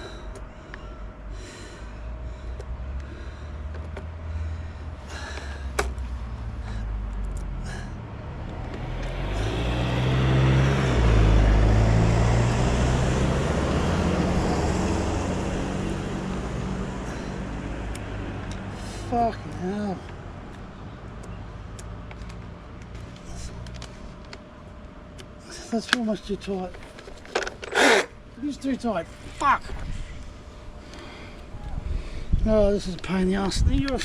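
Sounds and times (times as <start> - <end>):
low rumble: 0.0 - 18.9
motor vehicle passing by: 1.8 - 24.2.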